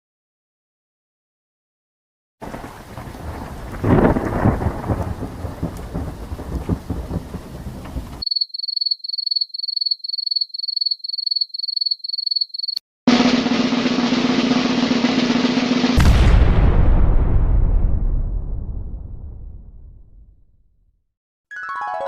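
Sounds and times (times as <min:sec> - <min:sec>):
steady rain: 0:02.4 - 0:08.2
thunder rumble: 0:02.4 - 0:08.2, 0:13.2 - 0:20.4.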